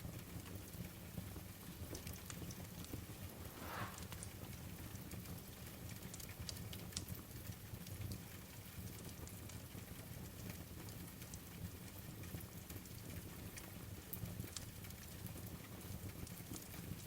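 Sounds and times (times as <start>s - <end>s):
wood fire crackling: 2.9s - 4.5s.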